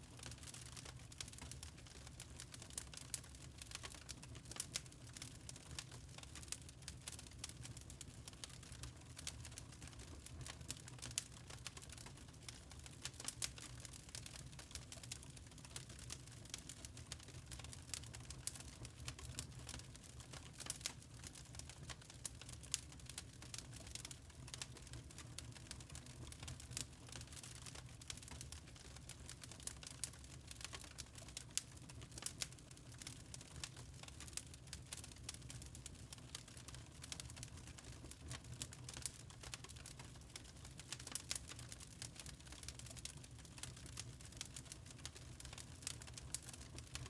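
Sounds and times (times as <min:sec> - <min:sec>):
charcoal crackling and popping: 0:00.0 - 0:47.0.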